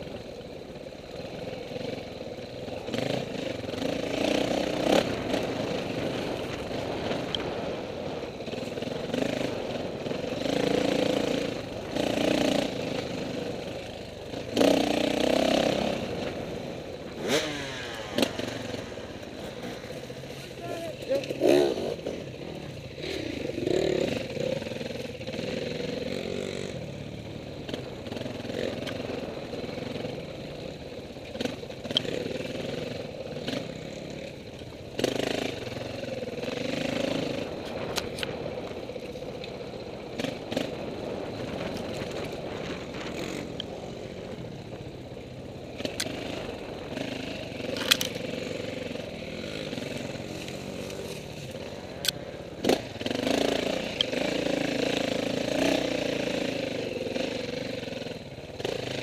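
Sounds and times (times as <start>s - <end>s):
dirt bike engine revving: 0.0s - 59.0s
sharp clicks and clatter: 47.6s - 48.3s.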